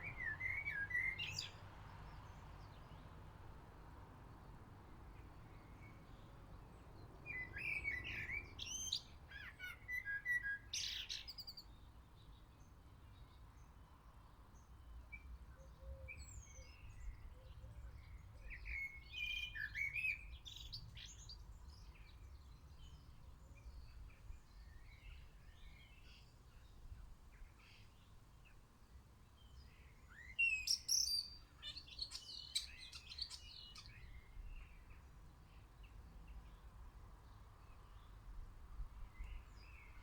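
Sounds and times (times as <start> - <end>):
small birds chirping: 29.4 - 38.2.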